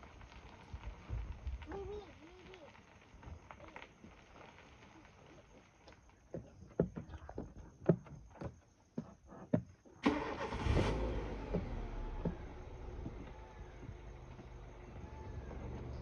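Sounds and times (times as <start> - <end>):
vehicle engine running: 10.0 - 16.0
deer hooves galloping: 11.3 - 16.0.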